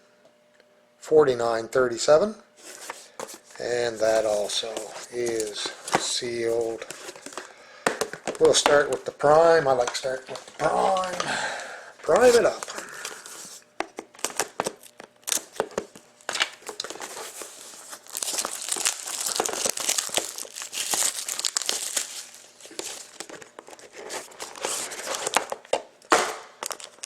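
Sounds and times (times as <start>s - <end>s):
plastic shrink-wrap crinkling: 9.8s - 25.8s, 26.6s - 27.0s.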